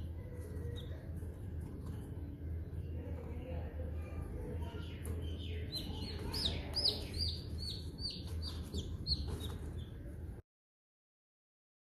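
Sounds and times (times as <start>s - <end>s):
low steady hum: 0.0s - 10.4s
bird chirping rapidly: 4.7s - 10.1s.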